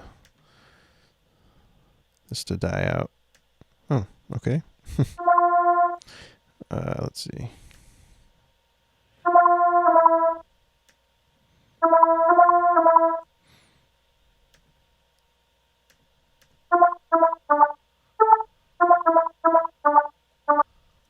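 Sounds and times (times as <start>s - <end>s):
square-wave synth lead: 5.2s - 6.0s, 9.3s - 10.4s, 11.8s - 13.2s, 16.7s - 20.6s.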